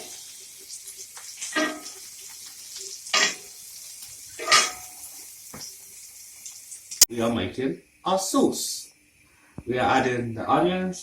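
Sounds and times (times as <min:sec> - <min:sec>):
oil sizzling in a frying pan: 0:00.0 - 0:08.1.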